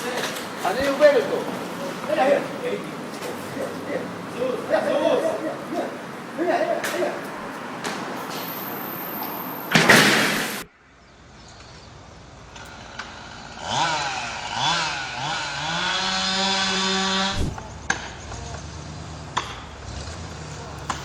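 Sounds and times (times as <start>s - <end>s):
small engine revving: 12.6s - 18.0s.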